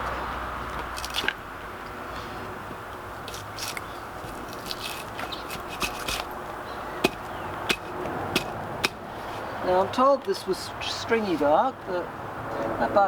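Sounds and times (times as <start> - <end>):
bark cracking off a log: 0.8 - 1.4, 3.3 - 6.4.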